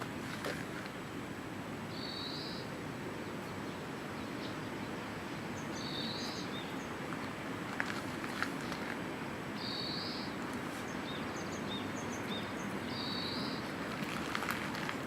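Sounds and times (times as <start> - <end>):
outdoor background noise: 0.0 - 15.0
small bird calling: 1.9 - 2.7, 5.4 - 7.0, 9.6 - 14.9.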